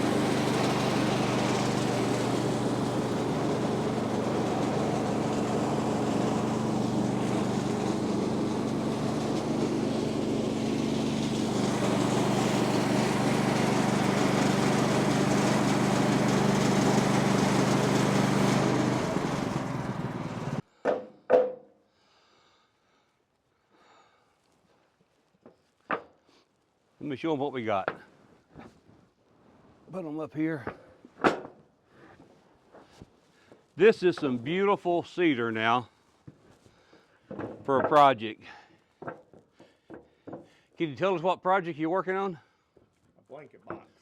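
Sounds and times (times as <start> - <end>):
sawmill gas engine running: 0.0 - 20.6.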